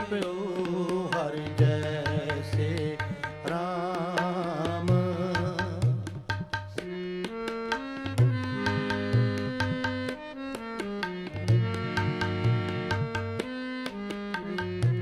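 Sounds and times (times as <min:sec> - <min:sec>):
rapid tabla rhythm: 0:00.0 - 0:15.0
held instrumental chords: 0:06.4 - 0:15.0.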